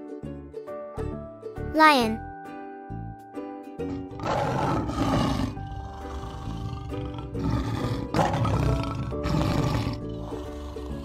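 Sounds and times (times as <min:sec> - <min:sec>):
background music: 0:00.0 - 0:11.0
lion roaring: 0:03.9 - 0:11.0.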